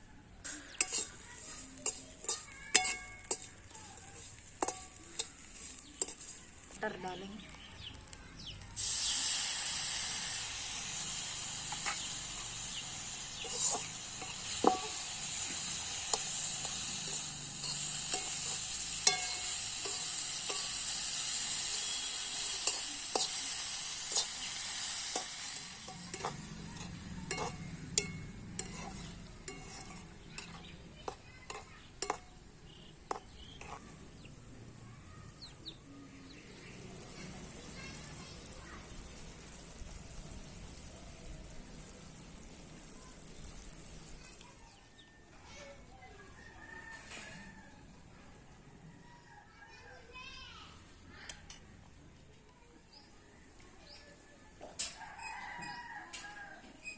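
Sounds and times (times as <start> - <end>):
vegetables sizzling in hot oil: 0.4 - 45.0
spoon knocking against pan: 13.6 - 15.0, 25.9 - 33.9.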